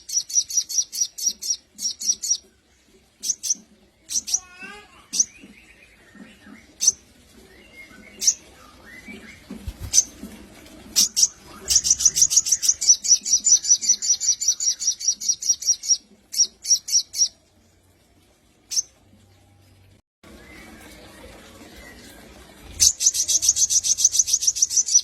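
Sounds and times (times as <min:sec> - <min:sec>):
bird chirping and trilling: 0:00.0 - 0:02.5, 0:03.2 - 0:10.2, 0:11.0 - 0:17.4, 0:18.7 - 0:19.0, 0:20.3 - 0:25.0.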